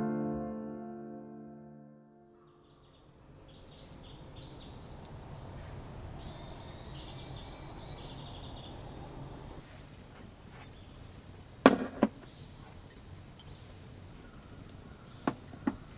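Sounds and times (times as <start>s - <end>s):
low background noise: 2.4s - 15.9s
small animals chirping: 2.6s - 9.6s.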